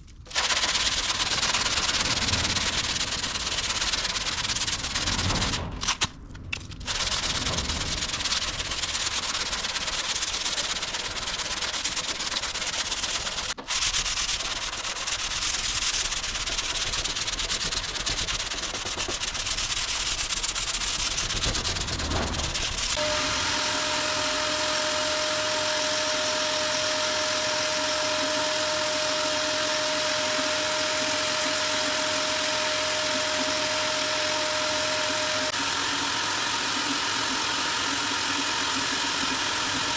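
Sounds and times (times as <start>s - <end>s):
sandpaper rasping: 0.3s - 5.6s, 6.8s - 39.9s
steady high whine: 19.8s - 39.9s.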